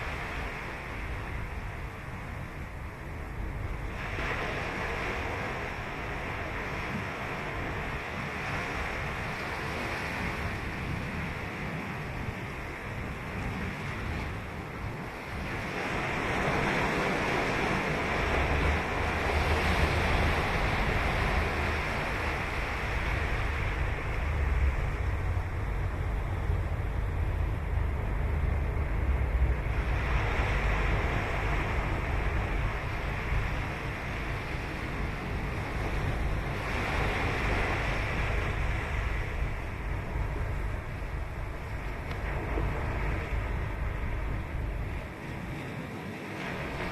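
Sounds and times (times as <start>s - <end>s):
ocean surf breaking: 0.0s - 46.9s.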